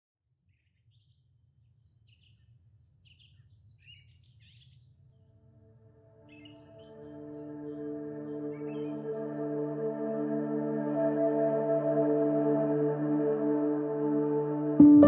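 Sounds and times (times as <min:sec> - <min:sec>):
birds chirping and singing: 0:03.0 - 0:05.2, 0:06.2 - 0:10.2
soft sustained music tones: 0:04.9 - 0:15.0.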